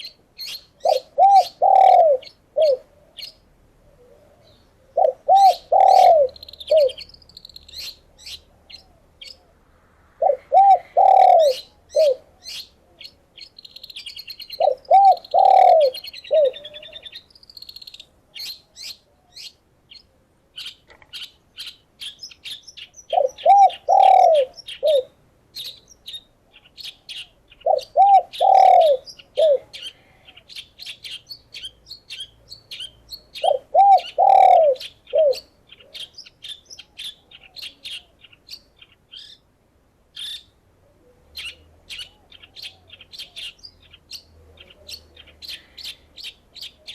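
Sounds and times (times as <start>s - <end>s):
dove cooing: 0.0s - 7.1s, 10.2s - 13.1s, 14.4s - 17.2s, 23.1s - 25.8s, 26.8s - 31.7s, 32.8s - 36.1s
songbirds chirping and tweeting: 0.0s - 46.9s.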